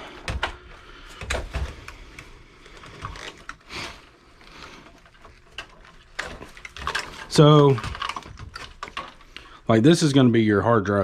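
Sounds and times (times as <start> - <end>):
computer parts clicking and rattling: 0.0 - 3.7, 4.8 - 9.5.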